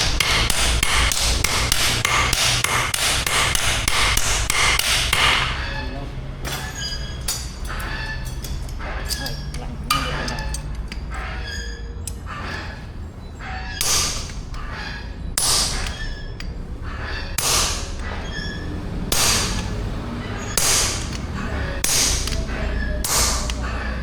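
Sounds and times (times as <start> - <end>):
hammer striking anvil: 0.0 - 5.8, 13.7 - 24.0.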